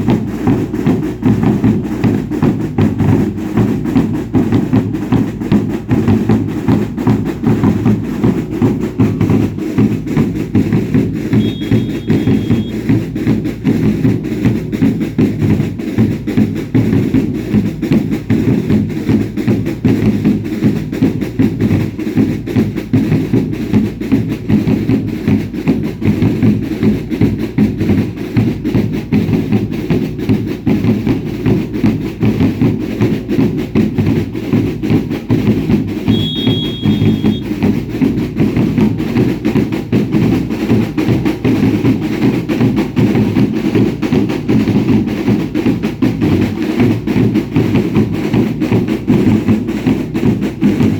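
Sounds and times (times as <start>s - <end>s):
drums beating fast rhythm: 0.0s - 50.9s
heavy bass drums: 0.0s - 50.9s
short high whistle: 11.4s - 12.8s, 36.1s - 37.5s.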